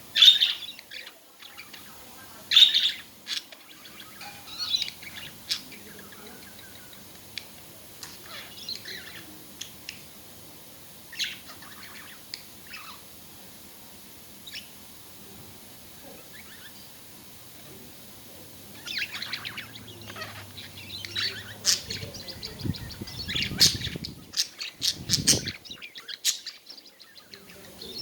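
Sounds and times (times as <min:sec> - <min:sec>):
budgerigars chirping: 0:00.2 - 0:07.0, 0:08.0 - 0:09.3, 0:18.8 - 0:28.0.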